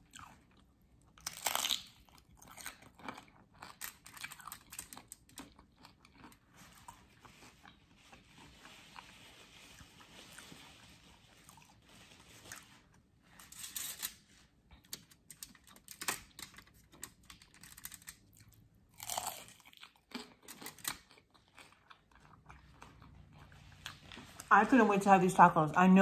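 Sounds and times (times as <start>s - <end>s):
crunching and chewing: 0.0s - 24.5s.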